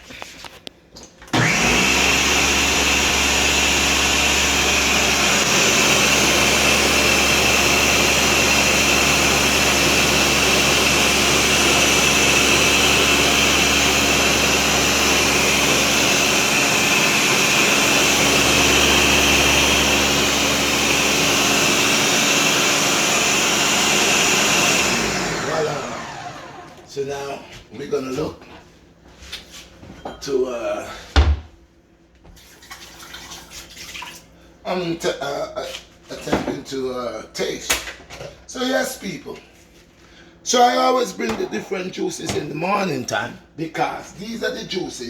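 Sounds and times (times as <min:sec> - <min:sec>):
blender running: 0:01.4 - 0:26.9.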